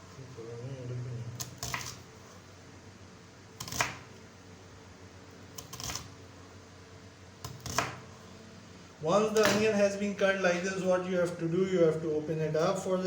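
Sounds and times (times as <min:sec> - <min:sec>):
knife slicing onion on board: 0:01.4 - 0:02.3, 0:03.6 - 0:04.1, 0:05.6 - 0:06.2, 0:07.4 - 0:08.0, 0:09.4 - 0:09.6.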